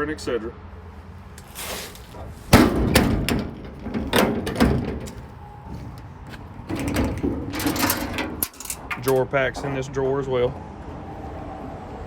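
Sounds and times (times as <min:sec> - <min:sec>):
metal compartment doors rattling: 0:01.9 - 0:10.6.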